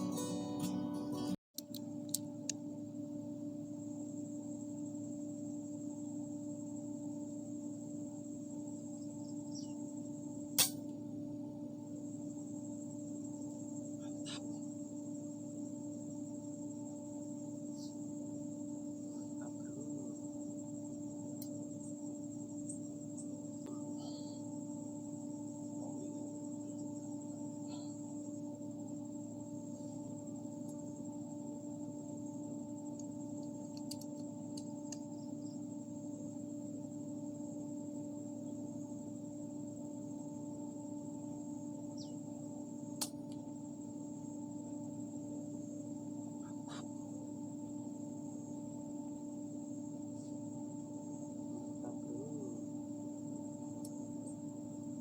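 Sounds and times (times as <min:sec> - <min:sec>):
high-pitched whine: 0:02.8 - 0:33.8
sharp click: 0:10.6 - 0:10.9.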